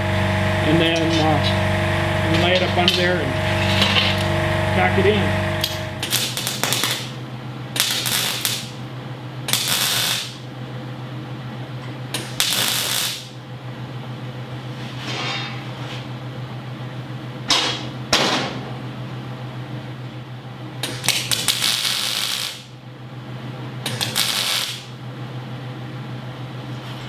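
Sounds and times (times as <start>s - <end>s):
welder crackling sizzle: 0.0s - 8.8s, 9.4s - 10.5s, 12.2s - 13.4s, 20.8s - 22.8s, 23.9s - 25.0s
steady low hum: 0.0s - 27.0s.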